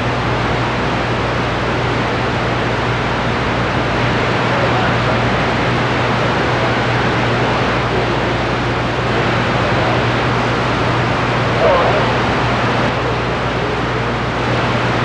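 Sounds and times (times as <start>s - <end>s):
steady low hum: 10.4s - 14.6s
radio hiss and static: 11.5s - 13.2s.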